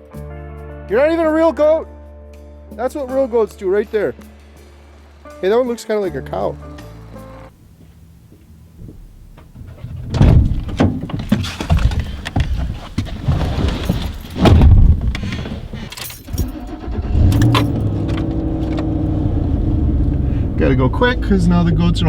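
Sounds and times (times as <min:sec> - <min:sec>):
knocks and clatter: 0:08.8 - 0:16.6
vehicle engine starting and running: 0:14.9 - 0:22.0.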